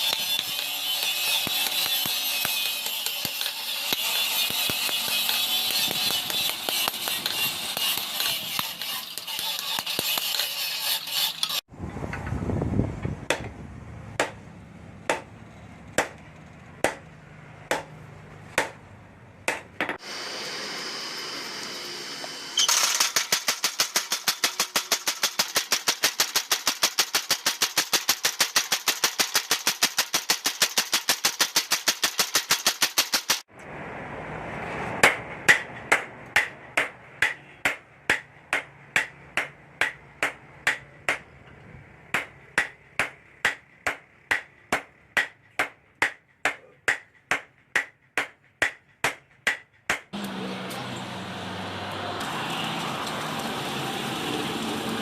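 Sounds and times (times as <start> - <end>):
hammer striking hot steel: 0.0 - 11.0
hissing noise: 20.0 - 22.6.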